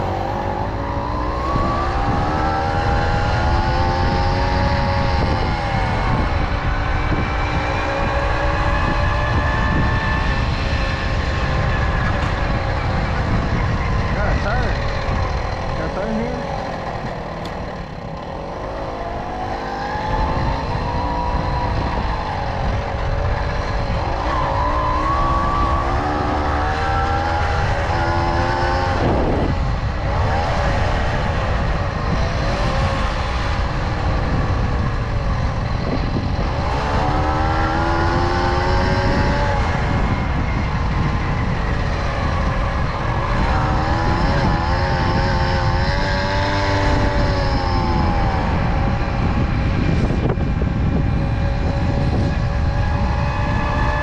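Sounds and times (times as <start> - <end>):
moped engine revving: 0.0 - 54.0
wind rumble on microphone: 0.0 - 54.0.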